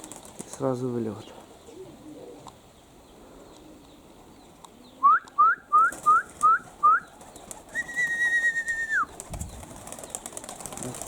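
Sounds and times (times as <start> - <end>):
person whistling: 5.0 - 7.0, 7.8 - 9.1.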